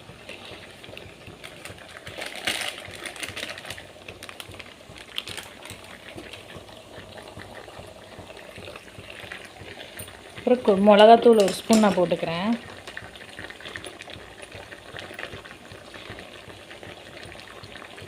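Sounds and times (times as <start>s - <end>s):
chicken frying in oil: 0.0s - 18.0s.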